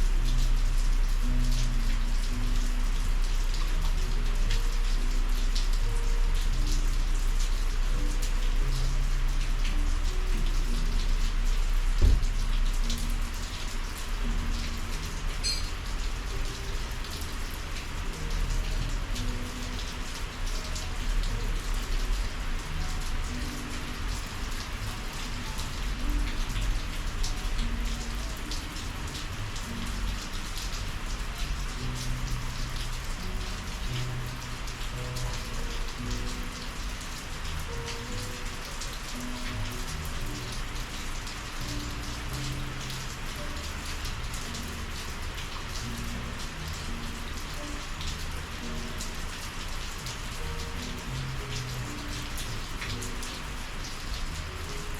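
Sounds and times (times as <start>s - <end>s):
heavy rain: 0.0s - 54.9s
raindrops ticking on surfaces: 0.0s - 54.9s.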